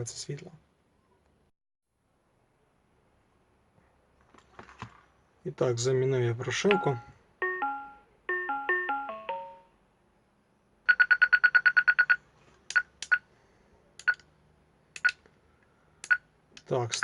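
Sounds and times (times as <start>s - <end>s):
melody of stepped tones: 6.7s - 9.7s.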